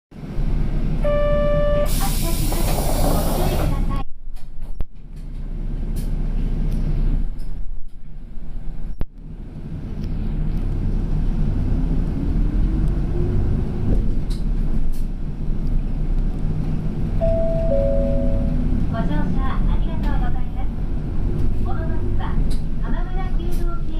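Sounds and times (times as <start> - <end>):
bus diesel engine running: 0.2 - 23.9
two-note electronic chime: 17.2 - 18.8.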